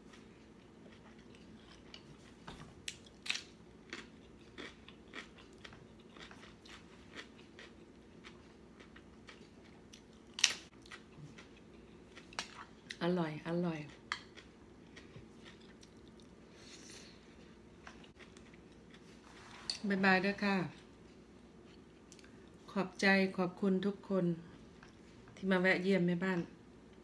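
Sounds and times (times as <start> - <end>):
person crunching raw vegetables: 0.0 - 13.0.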